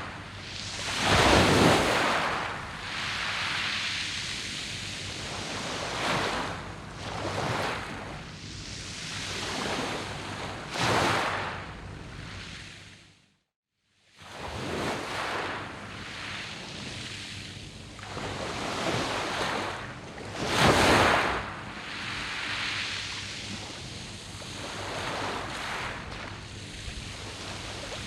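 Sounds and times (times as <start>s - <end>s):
waves breaking on pebble beach: 0.7s - 3.8s.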